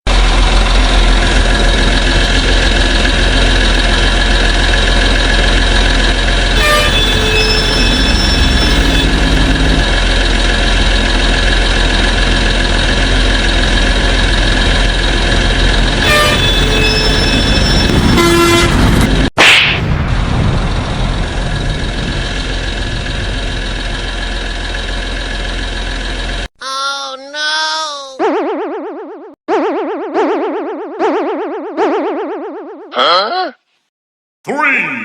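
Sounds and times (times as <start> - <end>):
heavy machine engines running: 0.1 - 19.3, 20.0 - 26.5.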